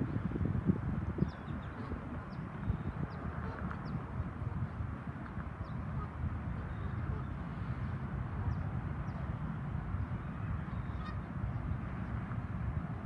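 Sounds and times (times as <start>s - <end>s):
waterfowl calling: 10.7s - 11.3s.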